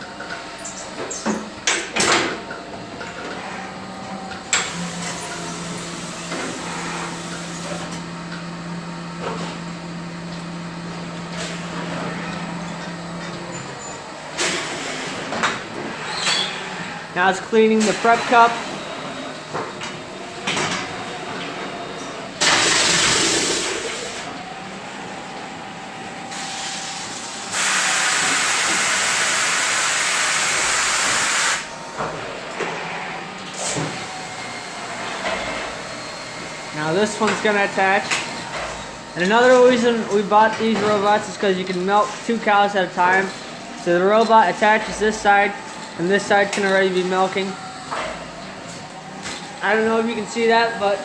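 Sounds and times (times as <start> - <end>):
milking machine hum: 0.0 - 51.0
air and water jet hissing: 4.6 - 7.9, 26.3 - 31.7.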